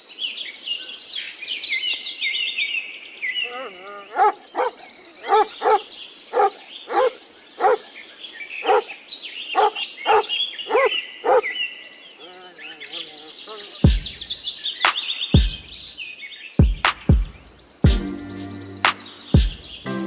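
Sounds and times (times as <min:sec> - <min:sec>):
birds chirping: 0:00.0 - 0:20.0
dog barking: 0:03.5 - 0:07.8, 0:08.6 - 0:08.9, 0:09.6 - 0:11.5.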